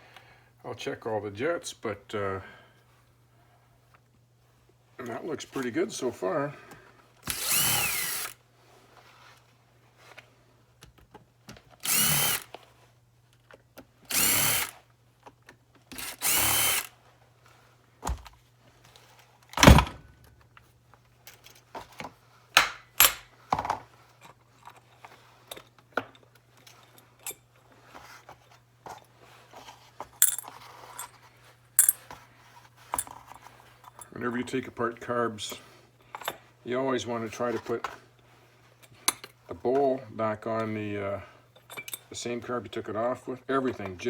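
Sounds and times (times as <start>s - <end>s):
cordless drill whining: 7.2s - 8.4s, 11.8s - 12.6s, 14.1s - 14.8s, 15.9s - 17.0s
small metal parts clinking: 30.1s - 31.2s, 31.8s - 32.1s, 33.0s - 34.1s, 41.6s - 42.1s.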